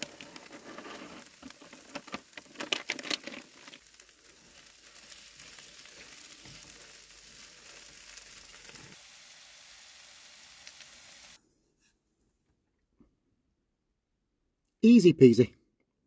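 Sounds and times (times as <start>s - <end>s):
food sizzling in a pan: 0.0s - 2.5s, 3.4s - 11.4s
spatula stirring: 0.0s - 2.6s, 3.2s - 9.0s.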